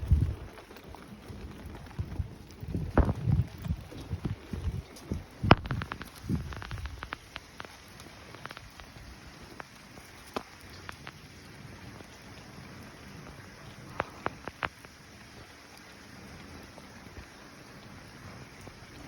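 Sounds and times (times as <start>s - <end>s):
rain falling: 0.0s - 19.0s
drops ticking on hard surface: 0.1s - 12.2s, 13.2s - 15.1s.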